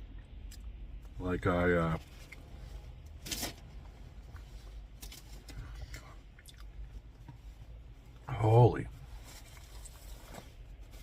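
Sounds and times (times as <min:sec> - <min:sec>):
person chewing food: 0:05.8 - 0:06.9.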